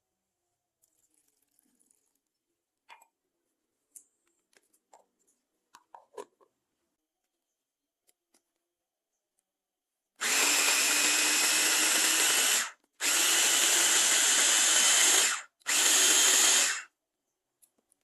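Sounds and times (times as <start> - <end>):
blender motor running: 10.2 - 16.9.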